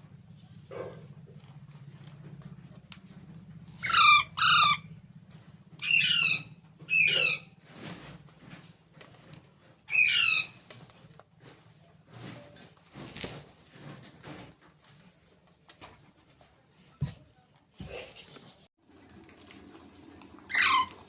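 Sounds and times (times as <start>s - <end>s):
parrot squawking: 3.8s - 4.9s, 5.8s - 7.5s, 9.9s - 10.6s, 20.5s - 20.9s.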